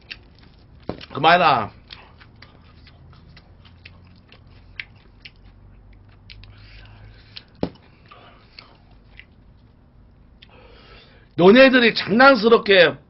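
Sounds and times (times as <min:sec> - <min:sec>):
chewing mouth smacks: 0:00.0 - 0:09.8.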